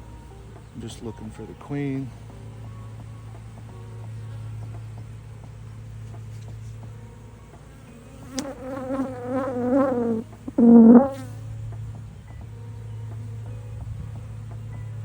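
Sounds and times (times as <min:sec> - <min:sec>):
steady low hum: 0:00.0 - 0:15.0
bees buzzing: 0:02.1 - 0:11.8
bee passing by: 0:02.6 - 0:12.1.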